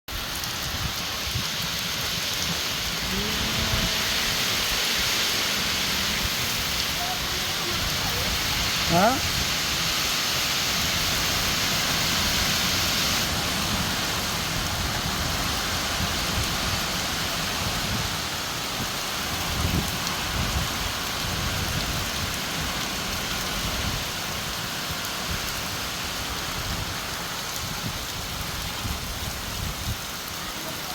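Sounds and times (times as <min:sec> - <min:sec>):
steady rain falling: 0:00.1 - 0:30.9
low rumbles: 0:02.2 - 0:09.5.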